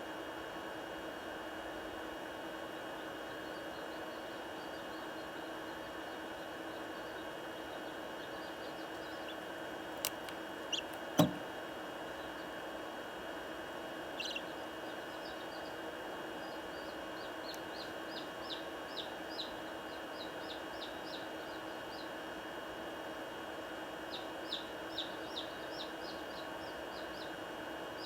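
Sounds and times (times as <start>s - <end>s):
chicks peeping: 8.2s - 10.1s, 10.7s - 11.4s, 14.1s - 15.8s
sharp knock: 11.2s - 11.4s.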